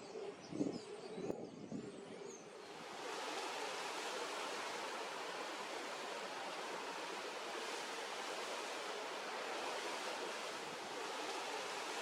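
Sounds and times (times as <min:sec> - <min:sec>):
ocean surf on a beach: 0:02.7 - 0:12.0.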